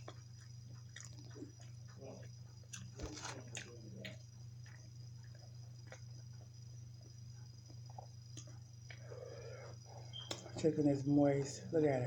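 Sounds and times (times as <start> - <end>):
person chewing: 0.0 - 1.9, 2.7 - 7.1, 7.7 - 10.0
low electrical hum: 0.0 - 12.0.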